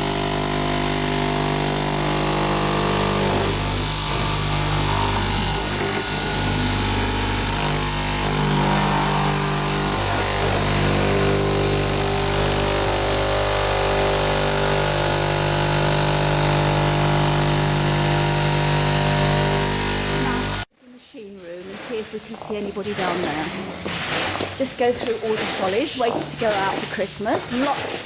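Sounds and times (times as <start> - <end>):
factory machinery humming: 0.0 - 20.7.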